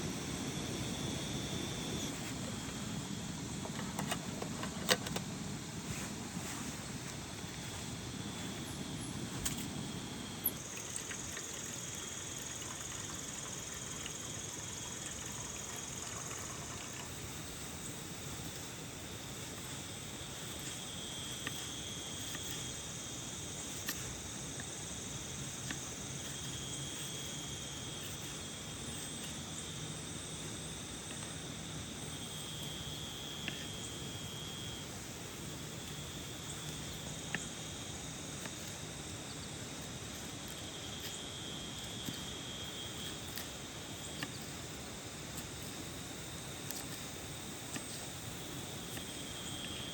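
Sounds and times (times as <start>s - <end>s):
insects trilling: 0.0s - 49.9s
drops ticking: 10.4s - 17.1s.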